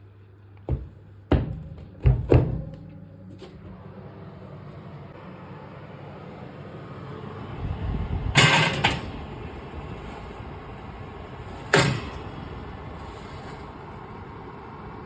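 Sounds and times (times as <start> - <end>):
low steady rumble: 2.6 - 15.0.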